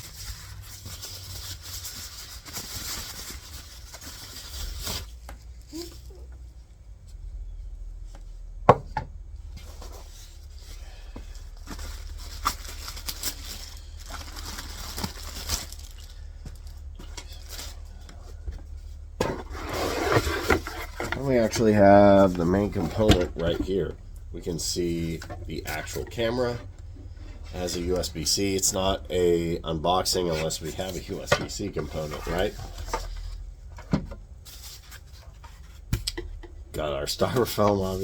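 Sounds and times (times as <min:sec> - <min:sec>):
cardboard rustling and tearing: 0:00.0 - 0:06.2, 0:11.4 - 0:18.0, 0:19.2 - 0:23.9, 0:27.6 - 0:33.4.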